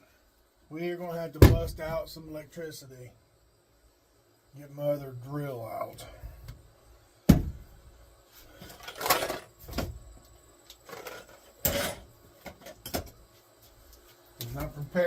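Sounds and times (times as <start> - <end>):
tools knocking and scraping: 10.9 - 13.1.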